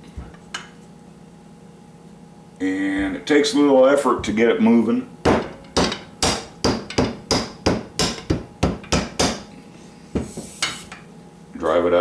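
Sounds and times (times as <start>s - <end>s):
mallet striking wooden handle: 5.2s - 9.5s.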